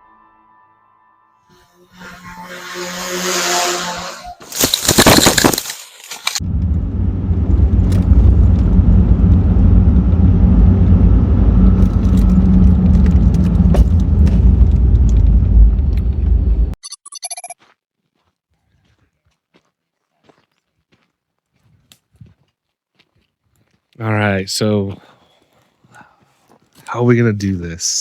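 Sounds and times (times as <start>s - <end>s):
vehicle rumbling on dirt trail: 4.6s - 16.8s
loud rush of noise: 6.3s - 16.8s
high electronic beeps: 16.8s - 17.6s.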